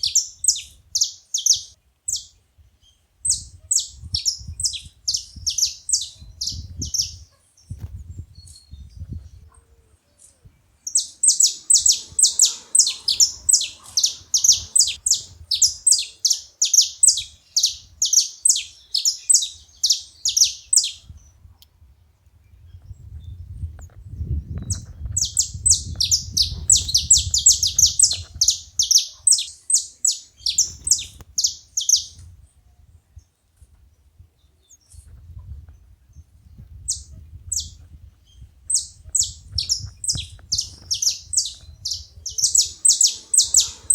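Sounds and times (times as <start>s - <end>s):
finches chirping: 0.0s - 2.4s, 3.3s - 7.8s, 10.2s - 21.3s, 24.5s - 32.2s, 38.7s - 43.9s.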